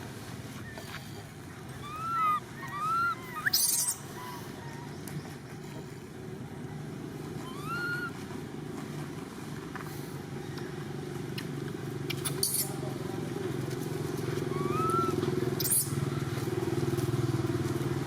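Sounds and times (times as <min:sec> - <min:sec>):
monkey squealing: 0:00.6 - 0:04.6, 0:07.4 - 0:08.2, 0:12.2 - 0:12.8, 0:14.4 - 0:16.3.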